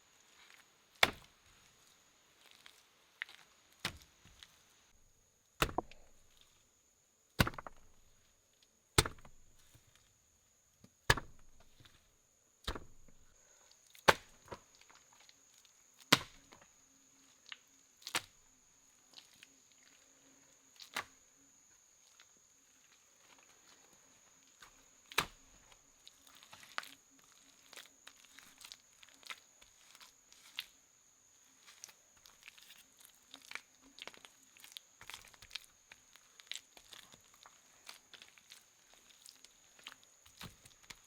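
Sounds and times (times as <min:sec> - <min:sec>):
wood chopping strokes: 0:01.0 - 0:01.4, 0:03.8 - 0:04.5, 0:05.6 - 0:06.5, 0:07.4 - 0:08.2, 0:09.0 - 0:10.0, 0:10.9 - 0:12.0, 0:12.6 - 0:13.4, 0:14.0 - 0:14.6, 0:16.0 - 0:16.6.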